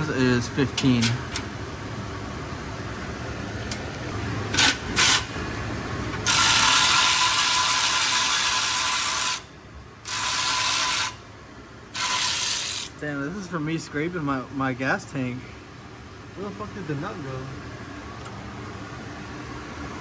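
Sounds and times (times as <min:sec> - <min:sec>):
ratchet wrench clicking: 0:04.5 - 0:05.3, 0:06.2 - 0:09.4, 0:10.0 - 0:11.2, 0:11.9 - 0:13.0.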